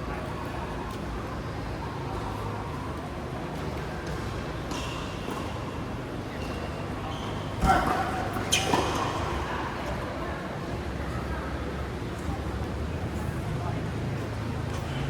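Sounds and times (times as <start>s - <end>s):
court background noise: 0.0s - 15.0s.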